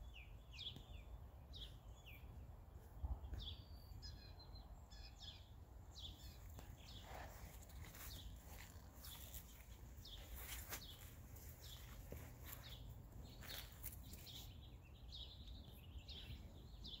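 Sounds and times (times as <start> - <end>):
songbirds chirping faintly: 0.0 - 17.0.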